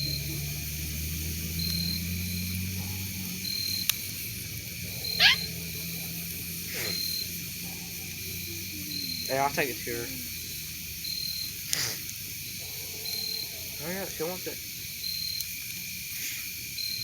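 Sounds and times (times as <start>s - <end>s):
sharply falling squeal: 5.1s - 5.5s.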